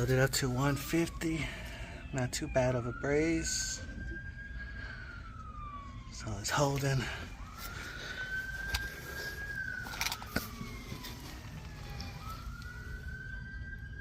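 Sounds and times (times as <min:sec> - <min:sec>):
emergency siren wailing: 0:00.0 - 0:14.0.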